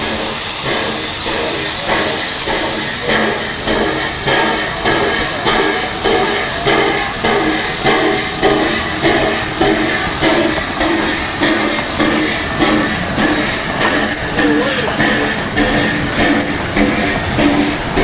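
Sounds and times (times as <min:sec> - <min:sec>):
locomotive exhaust chuffs: 0:00.0 - 0:18.0
steam hissing: 0:00.0 - 0:18.0.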